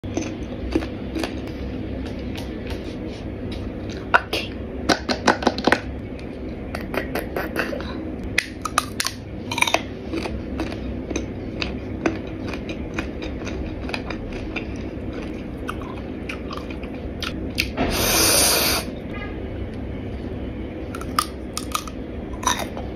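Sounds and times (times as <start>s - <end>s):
chewing crisp fruit: 0.0s - 4.1s, 8.4s - 17.7s, 21.0s - 22.9s.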